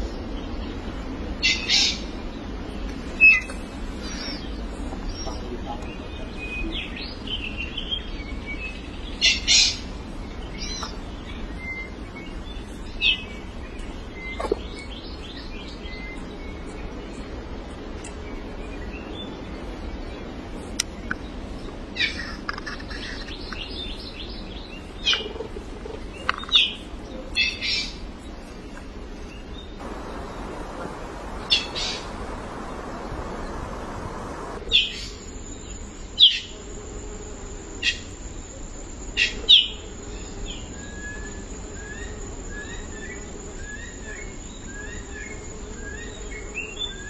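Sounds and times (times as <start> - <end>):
low background hiss: 0.0 - 47.0
songbirds chirping: 0.0 - 47.0
bird trill: 29.8 - 35.2.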